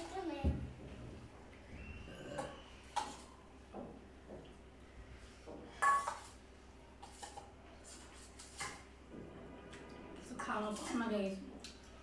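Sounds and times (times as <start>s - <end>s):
dishes and cutlery clinking: 2.2s - 3.4s, 5.7s - 6.4s.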